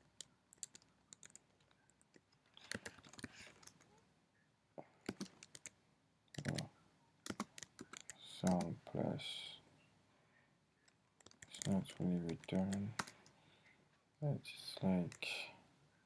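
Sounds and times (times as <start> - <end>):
typing on computer keyboard: 0.1 - 3.8, 5.0 - 5.8, 6.4 - 8.7, 11.2 - 13.3.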